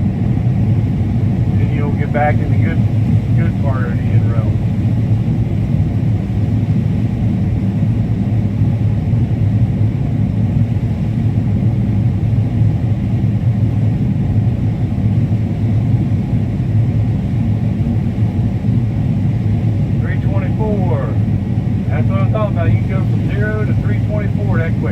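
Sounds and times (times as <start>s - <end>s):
combine harvester droning: 1.4s - 4.8s, 19.1s - 24.9s.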